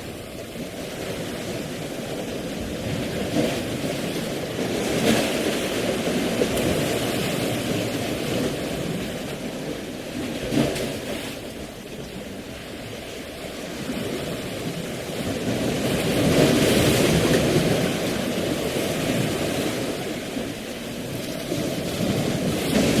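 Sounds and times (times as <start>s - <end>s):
rushing water: 0.0s - 23.0s.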